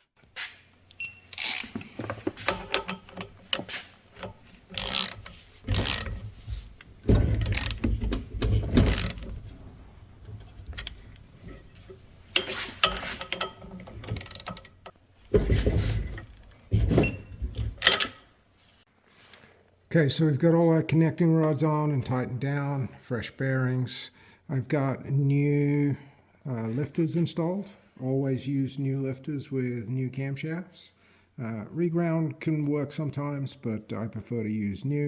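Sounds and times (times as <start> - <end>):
metal engine parts clinking: 0.8 - 18.4
hand ratchet clicking: 0.9 - 14.9.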